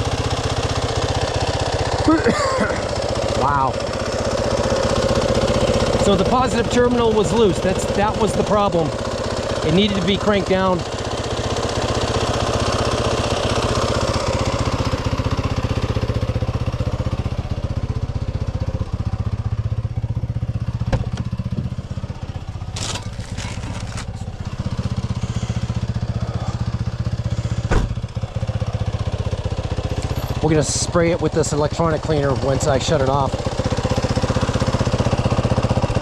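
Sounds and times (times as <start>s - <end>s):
dirt bike engine idling: 0.0s - 36.0s.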